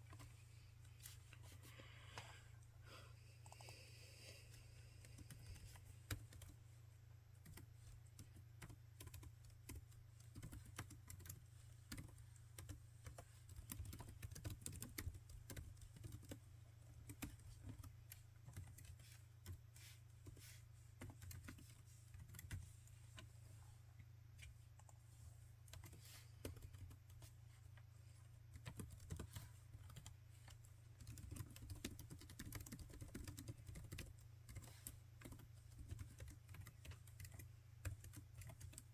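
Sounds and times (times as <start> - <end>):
laptop keyboard typing: 3.4 - 3.9, 5.0 - 6.6, 7.4 - 19.6, 21.0 - 22.7, 25.6 - 27.4, 28.5 - 38.9.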